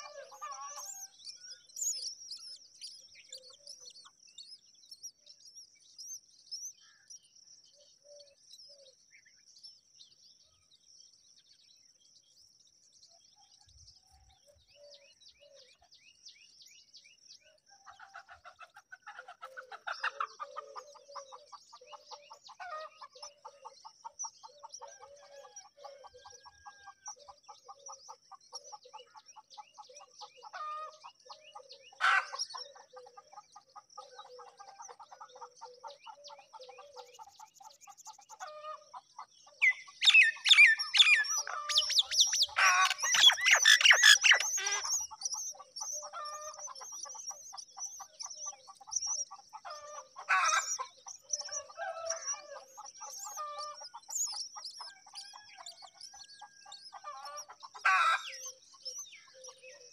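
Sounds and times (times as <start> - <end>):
harsh chattering bird calls: 18.0 - 59.9
high bird trill: 40.1 - 45.1.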